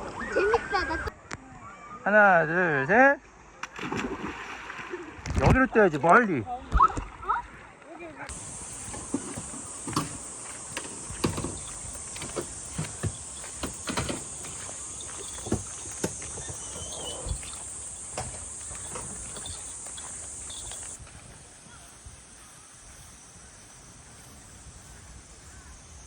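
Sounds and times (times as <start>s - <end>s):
insects droning: 8.0s - 26.0s
rushing water: 8.3s - 21.0s
sharp clicks and knocks: 8.3s - 21.0s.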